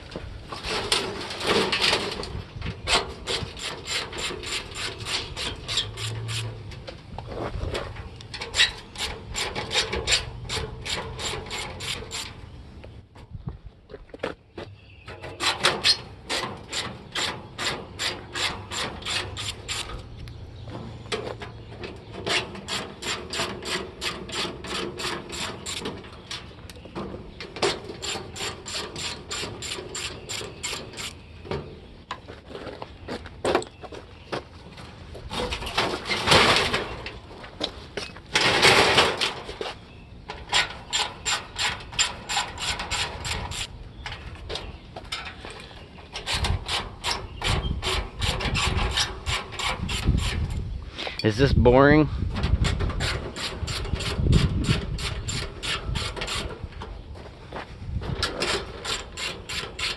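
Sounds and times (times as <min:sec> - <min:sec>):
metal scraping: 0:00.0 - 0:12.6, 0:15.0 - 0:31.2, 0:45.1 - 0:51.4.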